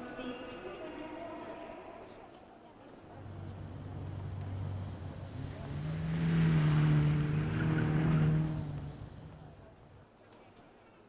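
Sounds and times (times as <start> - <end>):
car engine revving: 3.2 - 10.0.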